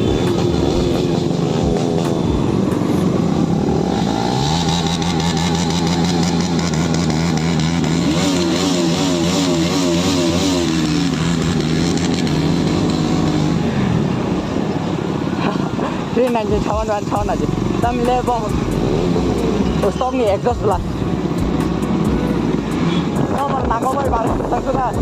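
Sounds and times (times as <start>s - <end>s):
motorcycle engine droning: 0.0s - 16.1s.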